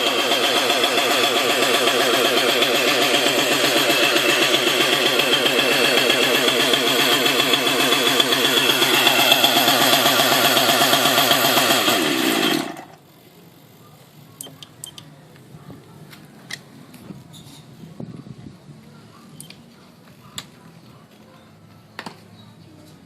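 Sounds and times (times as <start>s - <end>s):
model helicopter engine idling: 0.0s - 13.0s.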